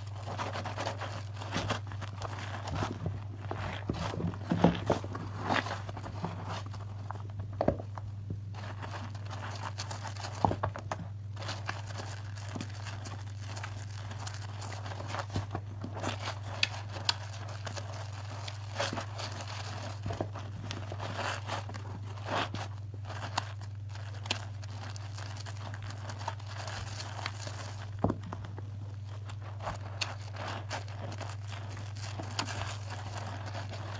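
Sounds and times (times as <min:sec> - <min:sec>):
steady low hum: 0:00.0 - 0:33.9
hands squishing soap lather: 0:22.4 - 0:33.9.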